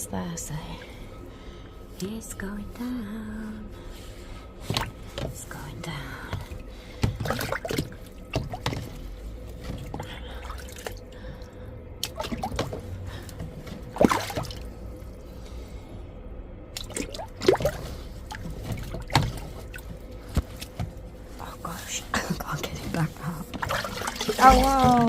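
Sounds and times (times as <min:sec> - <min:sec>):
water splashing in drain: 0:06.3 - 0:11.2, 0:12.0 - 0:15.0, 0:16.7 - 0:20.7, 0:23.5 - 0:25.0.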